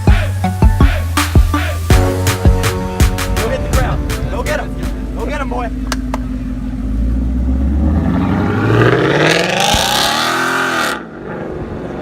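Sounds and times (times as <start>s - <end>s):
car engine accelerating hard: 3.3s - 12.0s.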